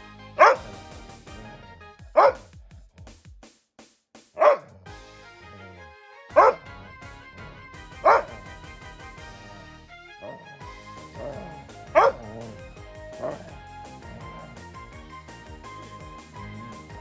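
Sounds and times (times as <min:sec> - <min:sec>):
background music: 0:00.0 - 0:02.6, 0:04.4 - 0:17.0
dog barking: 0:00.4 - 0:00.7, 0:02.1 - 0:02.5, 0:04.4 - 0:04.8, 0:06.4 - 0:06.7, 0:08.0 - 0:08.6, 0:10.2 - 0:10.5, 0:11.2 - 0:14.5.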